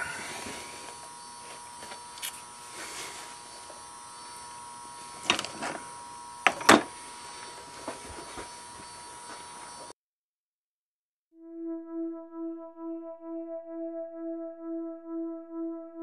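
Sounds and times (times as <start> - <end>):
steady hum: 0.0 - 8.8.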